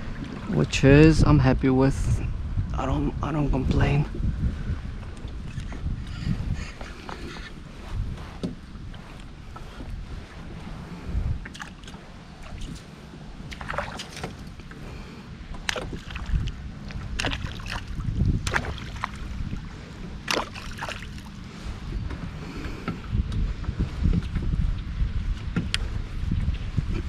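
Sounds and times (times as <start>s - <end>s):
wind rumble on microphone: 0.0s - 27.0s
water sloshing against kayak hull: 4.1s - 24.6s
short sharp splashes: 13.5s - 14.5s, 17.1s - 19.2s, 20.2s - 21.3s.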